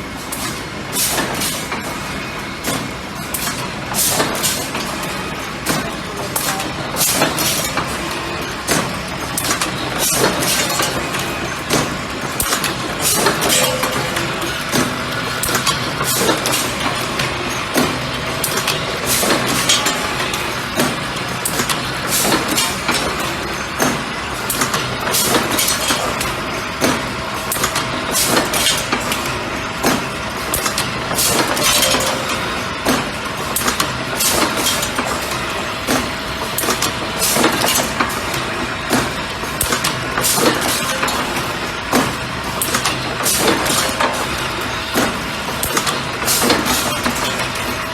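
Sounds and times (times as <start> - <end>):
machine humming: 10.4 - 22.0.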